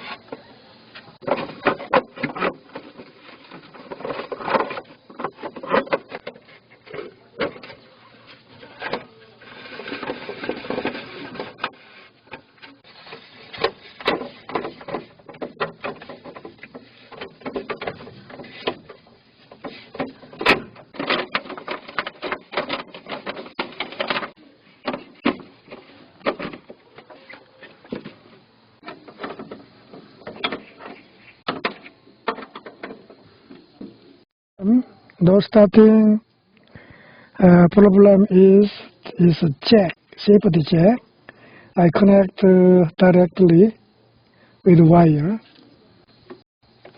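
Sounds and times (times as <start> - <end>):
clicks and rattles of handling parts: 1.0 - 34.0.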